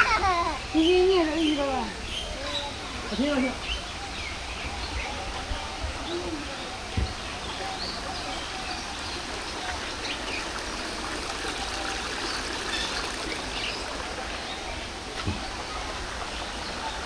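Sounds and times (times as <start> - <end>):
running water: 2.7 - 17.0
brief thump: 6.9 - 7.2, 15.2 - 15.5.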